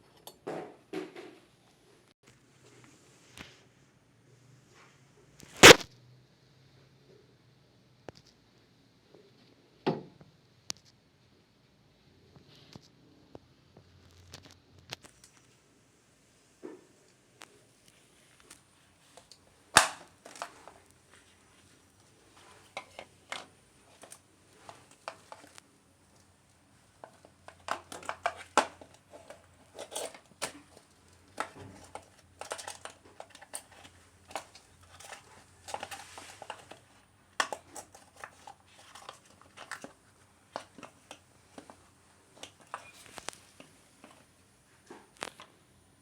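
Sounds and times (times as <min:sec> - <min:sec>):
crinkling and rustling: 0:12.4 - 0:15.7, 0:16.6 - 0:45.6
handling clicks and knocks: 0:18.4 - 0:21.0, 0:22.0 - 0:25.6, 0:26.9 - 0:44.3.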